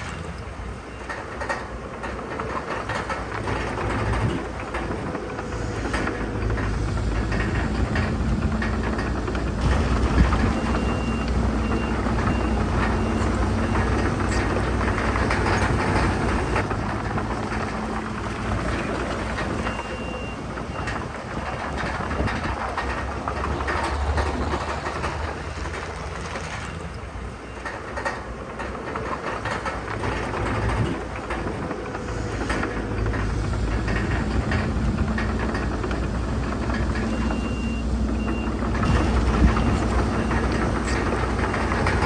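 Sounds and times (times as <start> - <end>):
heavy diesel machinery running: 0.0 - 42.0
rattling and clanking: 0.0 - 42.0
back-up alarm beeping: 9.6 - 16.6, 37.0 - 42.0.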